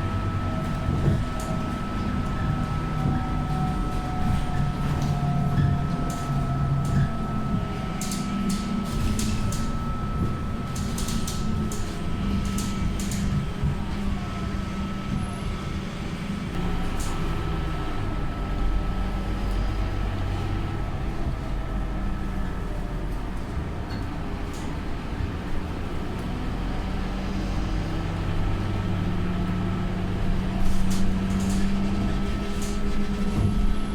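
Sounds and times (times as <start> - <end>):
bus engine droning: 0.0 - 33.9
thin steady whine: 6.6 - 12.9.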